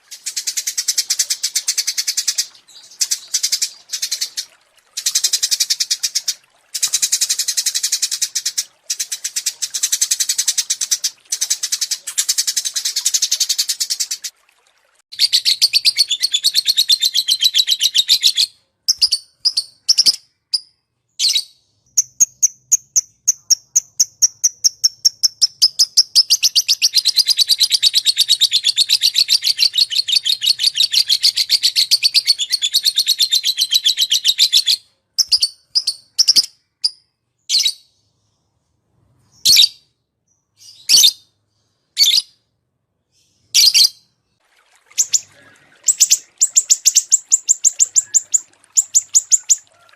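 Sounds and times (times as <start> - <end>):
bird chirps: 45.0 - 49.9
songbird trilling: 45.0 - 49.9.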